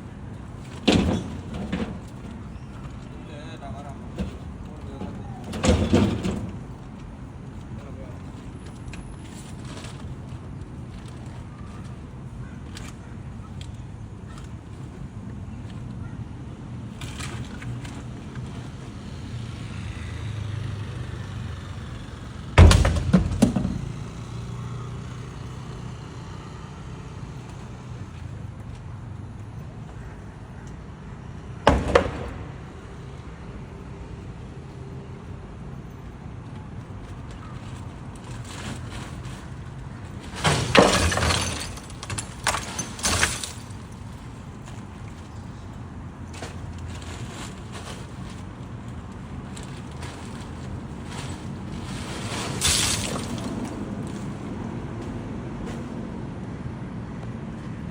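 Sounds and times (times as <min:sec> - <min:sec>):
truck engine humming: 0:17.5 - 0:57.9
loud crashing rattling: 0:22.6 - 0:24.0, 0:40.3 - 0:43.9
loud bangs: 0:22.6 - 0:24.1, 0:31.7 - 0:33.0.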